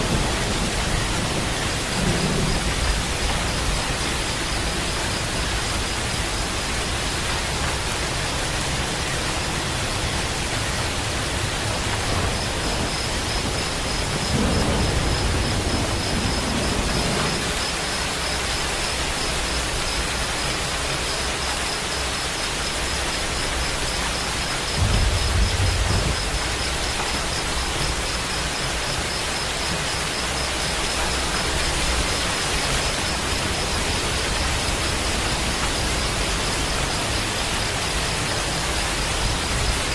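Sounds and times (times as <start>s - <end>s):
distant thunder rumbling: 0.0s - 5.6s, 9.8s - 18.4s, 24.5s - 39.8s
steady rain hissing: 0.0s - 39.9s.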